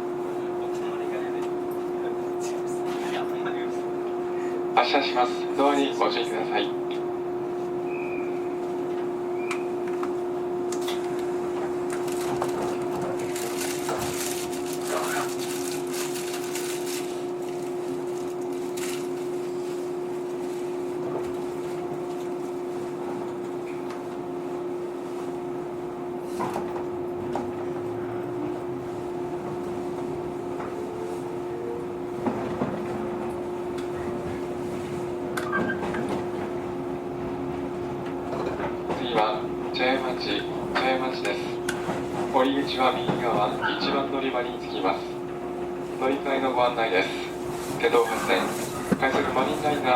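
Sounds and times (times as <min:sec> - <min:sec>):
train running noise: 0:00.0 - 0:49.9
two-note electrical hum: 0:00.0 - 0:49.9
clicks and knocks from train car: 0:32.2 - 0:39.8, 0:40.6 - 0:44.0, 0:48.1 - 0:49.6.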